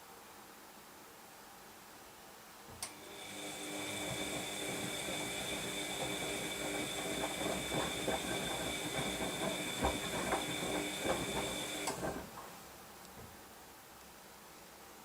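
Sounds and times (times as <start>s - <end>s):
washing machine motor whine: 2.8s - 12.4s
drum knocking and laundry tumbling: 3.6s - 12.6s.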